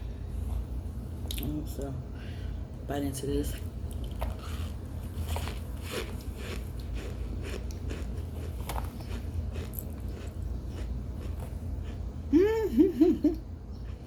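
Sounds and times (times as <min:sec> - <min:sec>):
squeaky crunching while chewing: 0:04.0 - 0:12.2.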